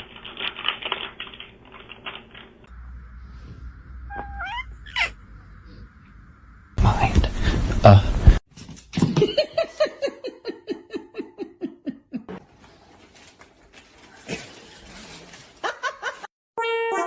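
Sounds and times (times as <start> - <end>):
person laughing: 9.0 - 12.4.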